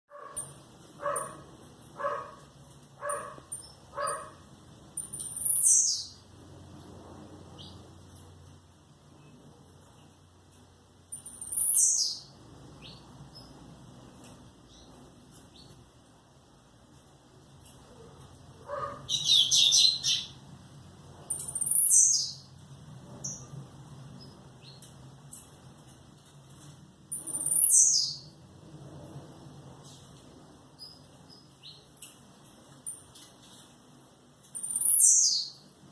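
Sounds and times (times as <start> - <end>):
dog barking: 0.1 - 4.4, 17.9 - 19.1
songbirds chirping: 0.1 - 28.6.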